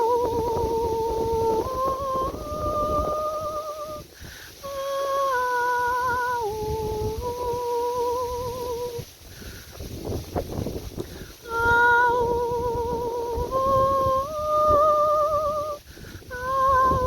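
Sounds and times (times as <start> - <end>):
woman humming with vibrato: 0.0 - 9.1, 11.4 - 17.0.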